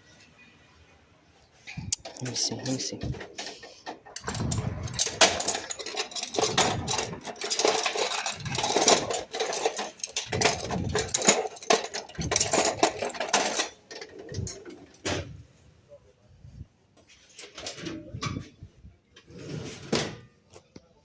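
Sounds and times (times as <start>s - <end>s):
metal hand tools clinking: 1.9s - 14.8s.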